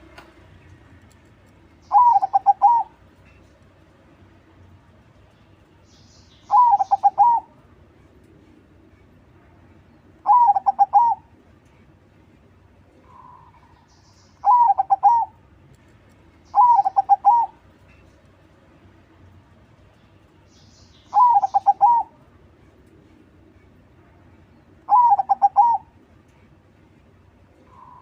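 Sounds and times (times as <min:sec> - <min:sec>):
dove stuttering cooing song: 0:01.9 - 0:03.0, 0:06.5 - 0:07.5, 0:10.2 - 0:11.4, 0:14.4 - 0:15.4, 0:16.5 - 0:17.7, 0:21.1 - 0:22.2, 0:24.9 - 0:26.0.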